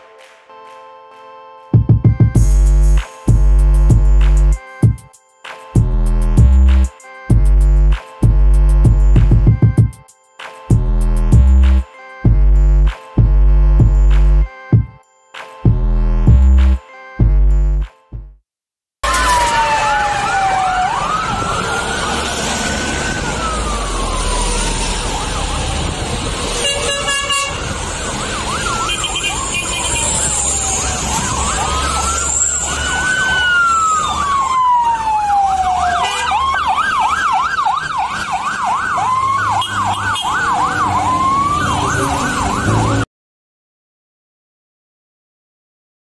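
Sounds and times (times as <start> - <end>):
electronic sirens wailing: 19.0 - 43.1.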